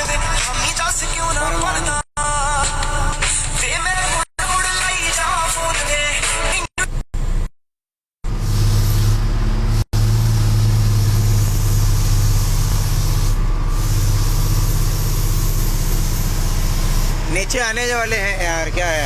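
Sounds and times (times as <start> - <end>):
truck engine droning: 8.2 - 19.0.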